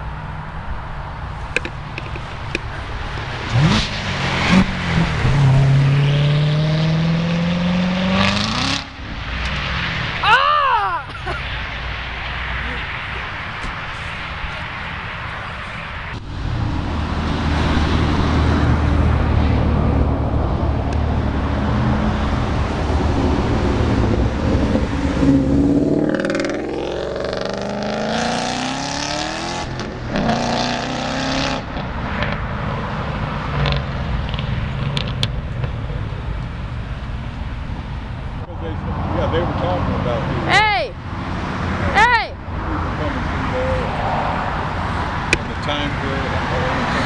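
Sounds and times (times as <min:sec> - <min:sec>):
car engine accelerating past: 0:03.0 - 0:10.2, 0:16.0 - 0:35.3.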